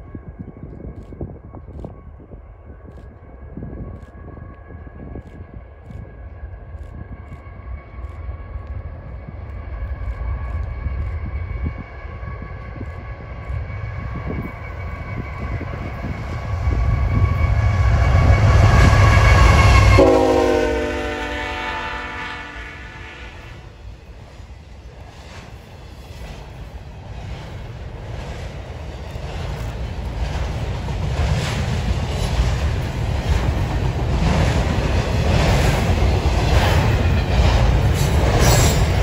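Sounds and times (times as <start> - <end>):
train horn: 18.2 - 23.7.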